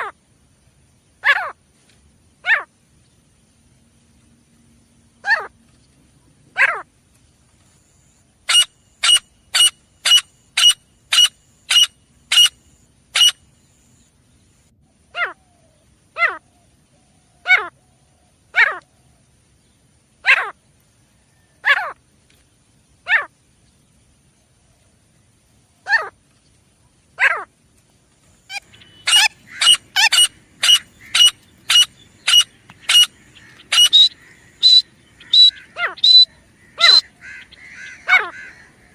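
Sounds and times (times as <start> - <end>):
francolin calling: 8.0 - 19.2, 28.4 - 38.9.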